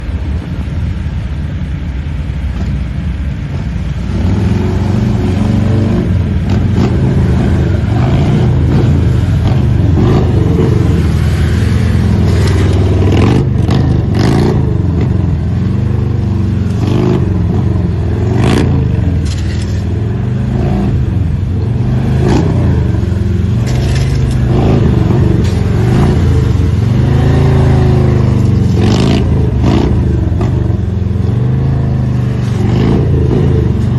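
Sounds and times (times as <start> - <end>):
motorcycle engines revving: 0.0 - 33.9
sharp scrapes: 19.2 - 20.0, 23.6 - 24.5.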